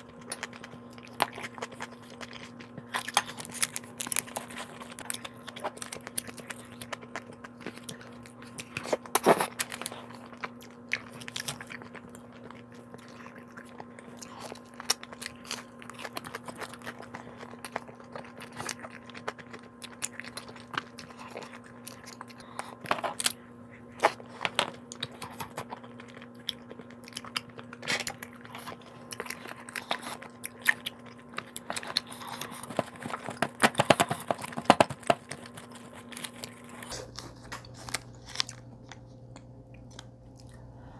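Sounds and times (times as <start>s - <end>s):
person chewing and crunching: 0.0s - 40.7s
steady low hum: 0.0s - 40.9s.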